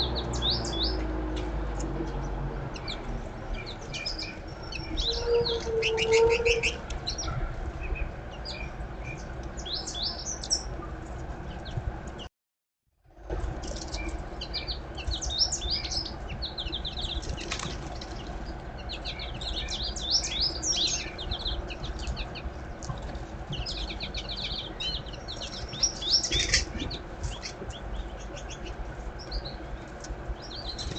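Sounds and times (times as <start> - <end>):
songbirds chirping: 0.0 - 12.3, 13.3 - 30.9
wings fluttering: 16.8 - 19.5.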